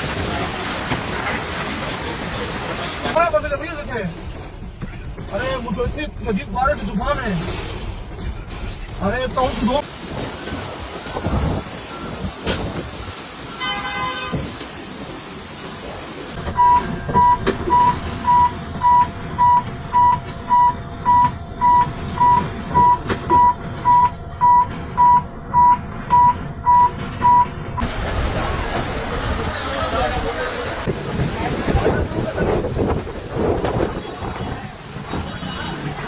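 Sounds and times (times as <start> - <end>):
wind and rain: 0.0 - 3.2, 9.8 - 17.4, 27.8 - 36.0
electronic alarm beeping: 16.6 - 27.5.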